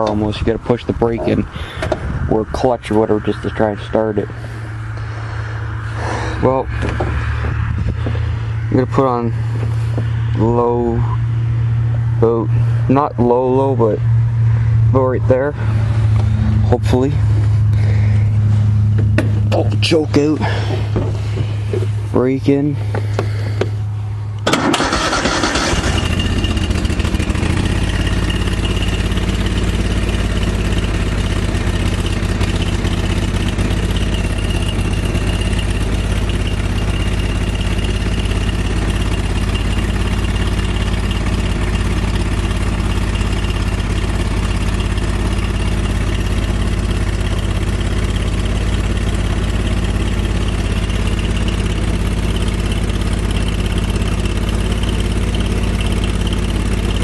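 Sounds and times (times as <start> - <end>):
engine cranking and starting: 24.4 - 57.0.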